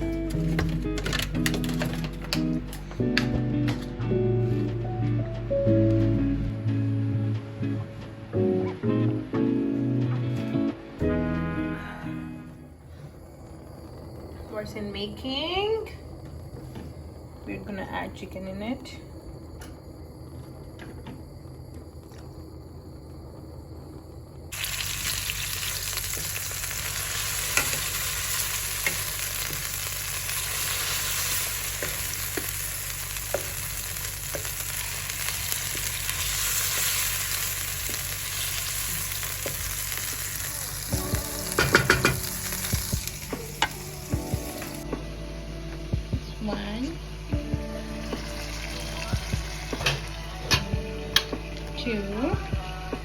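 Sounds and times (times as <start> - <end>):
chicken sizzling in a pan: 24.5 - 44.8.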